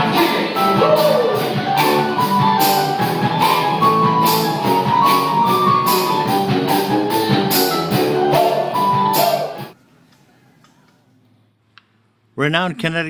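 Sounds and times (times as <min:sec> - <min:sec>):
drums keeping steady beat: 0:00.0 - 0:09.8
live band playing pop music: 0:00.0 - 0:09.8.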